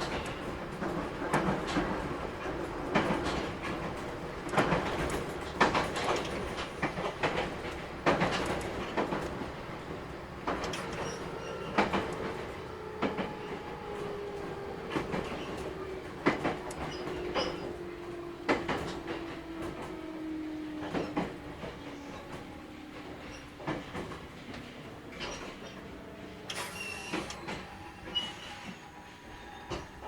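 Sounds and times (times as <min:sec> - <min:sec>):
train running rumble: 0:00.0 - 0:30.0
wheels clicking over rail joints: 0:00.0 - 0:30.0
electric train motor whine: 0:07.8 - 0:30.0.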